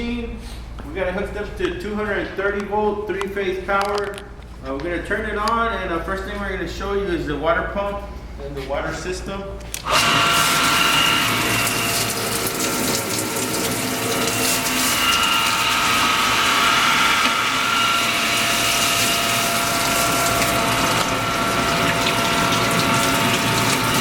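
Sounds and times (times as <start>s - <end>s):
machine humming and whining: 9.4s - 24.0s
water pouring into pan: 10.1s - 16.6s, 18.1s - 24.0s.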